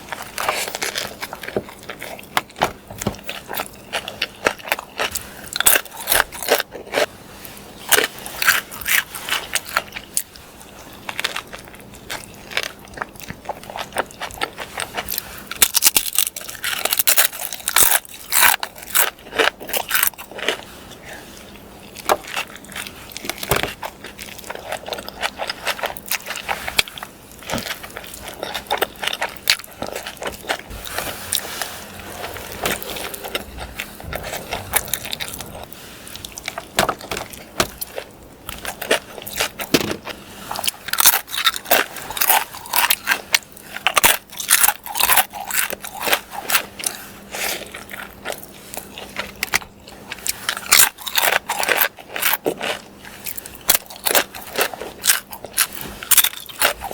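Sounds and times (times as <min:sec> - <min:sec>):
chewing and mouth smacking: 0:21.8 - 0:39.7.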